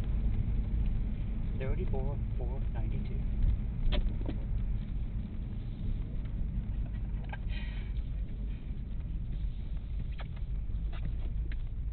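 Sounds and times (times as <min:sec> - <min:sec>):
car engine low rumble: 0:00.0 - 0:11.9.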